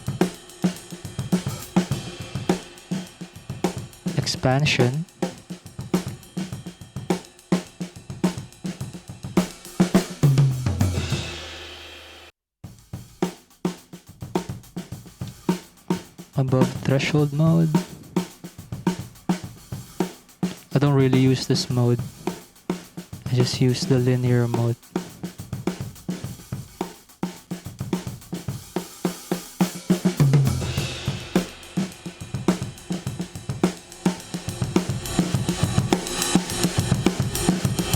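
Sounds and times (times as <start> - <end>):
cymbal crash: 0.0 - 4.1, 9.4 - 12.3, 29.8 - 37.9
acoustic drum kit beat: 0.0 - 37.9.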